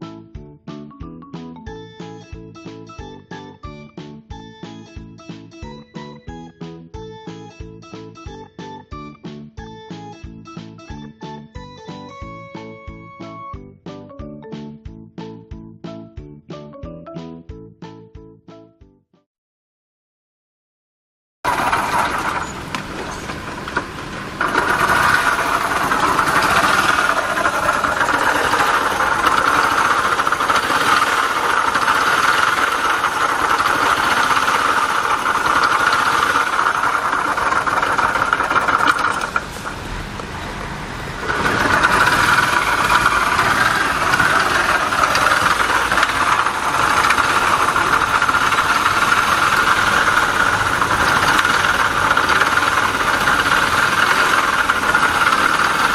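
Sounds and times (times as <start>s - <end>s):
high transmission whine: 21.5s - 55.9s
small motorcycle engine running: 21.5s - 55.9s.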